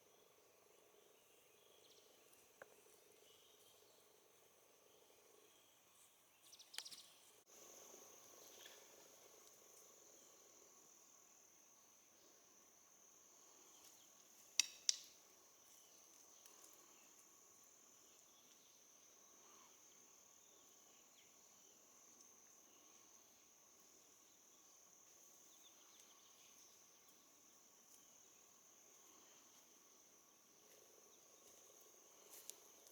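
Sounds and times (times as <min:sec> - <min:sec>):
high-pitched insect chorus: 0:00.0 - 0:32.9.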